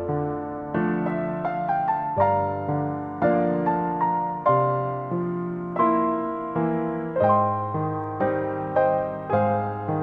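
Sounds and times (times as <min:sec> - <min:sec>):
gentle piano chords: 0:00.0 - 0:10.0.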